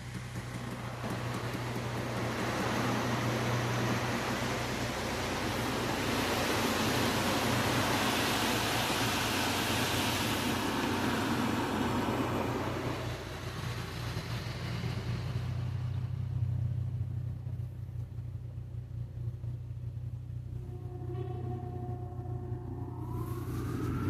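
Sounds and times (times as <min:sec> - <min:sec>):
car wash equipment hissing: 0:00.0 - 0:18.6, 0:21.6 - 0:24.0
vehicle low hum: 0:00.0 - 0:24.0.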